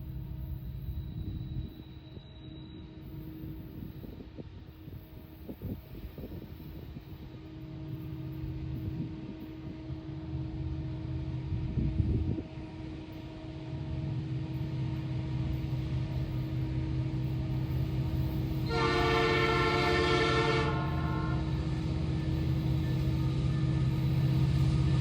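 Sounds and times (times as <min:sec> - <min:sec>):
locomotive engine rumble: 0:03.0 - 0:25.0
locomotive air horn blast: 0:18.6 - 0:21.5.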